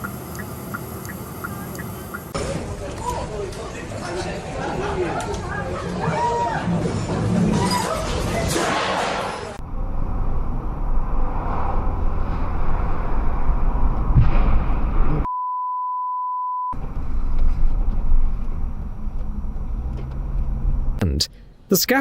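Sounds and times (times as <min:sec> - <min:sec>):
low rumbling noise: 0:09.5 - 0:15.3
censor bleep: 0:15.3 - 0:16.8.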